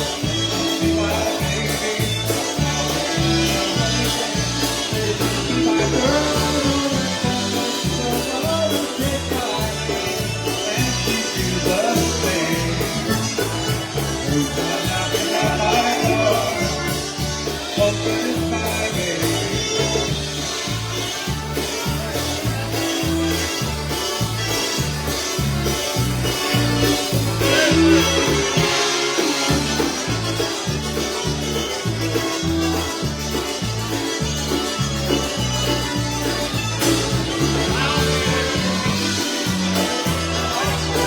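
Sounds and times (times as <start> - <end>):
person singing: 0.0 - 20.6, 27.1 - 30.5, 35.0 - 41.0
oom-pah bass pulse: 0.0 - 41.0
polka band playing: 0.0 - 41.0.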